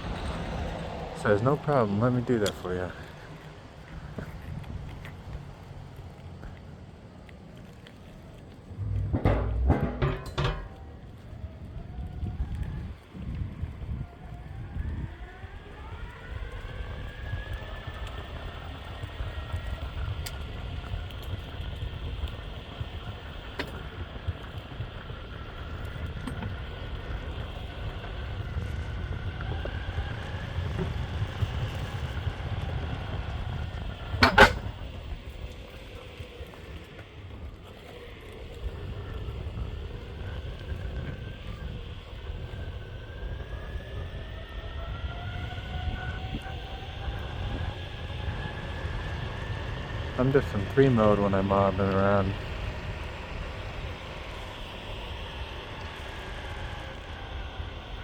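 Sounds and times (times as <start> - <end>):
skateboard wheels rumbling on road: 0.0 - 58.0
sharp knock: 8.8 - 10.8.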